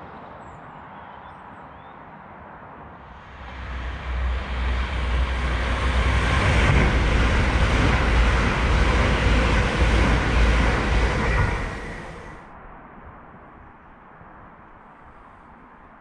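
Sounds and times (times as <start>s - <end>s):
train wheels rumbling on rail: 3.0s - 12.5s.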